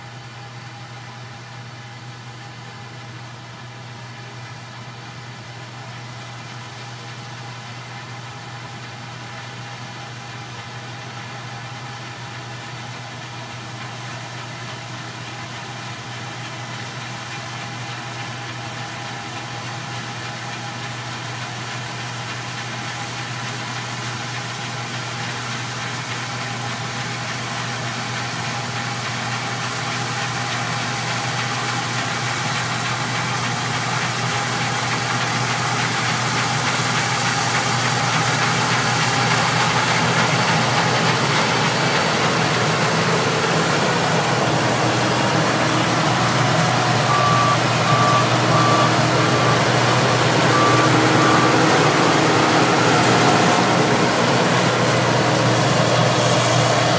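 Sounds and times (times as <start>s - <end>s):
combine harvester running: 0.0s - 56.9s
short beeps: 44.0s - 56.9s.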